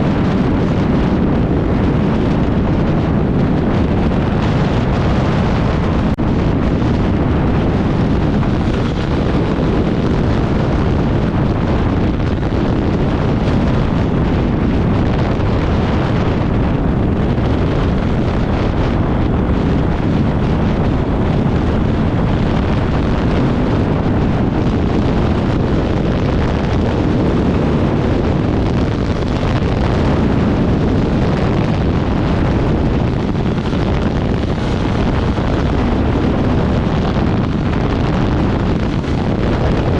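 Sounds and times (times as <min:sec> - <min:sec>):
dirt bike engine drone: 0:00.0 - 0:39.9
wind buffeting microphone: 0:00.0 - 0:39.9.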